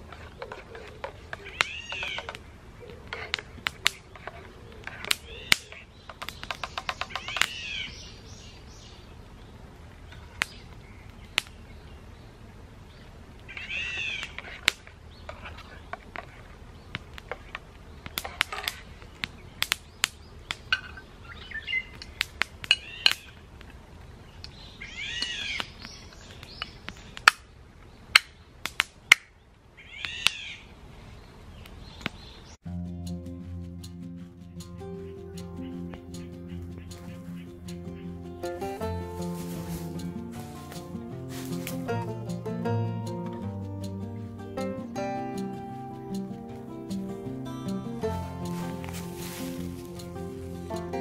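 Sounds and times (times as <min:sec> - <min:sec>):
high arching animal call: 0:00.0 - 0:05.9, 0:06.6 - 0:08.7, 0:13.5 - 0:14.7, 0:24.8 - 0:26.2, 0:29.8 - 0:30.8, 0:34.1 - 0:42.4
crackling campfire: 0:00.0 - 0:06.6, 0:07.2 - 0:30.3, 0:31.5 - 0:51.0.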